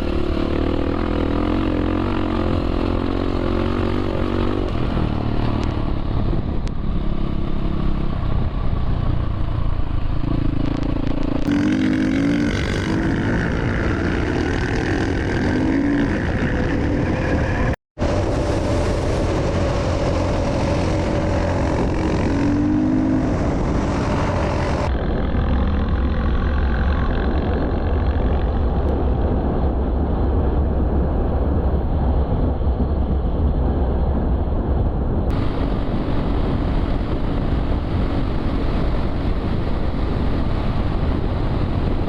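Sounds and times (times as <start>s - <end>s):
dirt bike engine revving: 10.3s - 27.0s.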